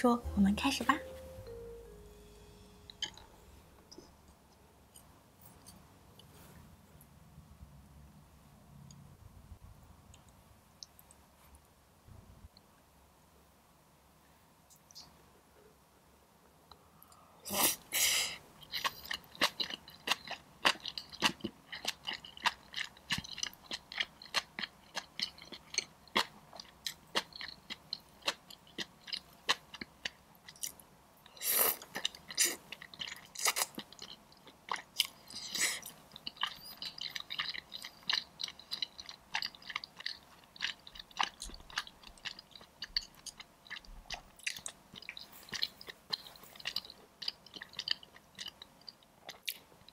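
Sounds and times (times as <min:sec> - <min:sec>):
close chewing of soft food: 0:18.5 - 0:49.9.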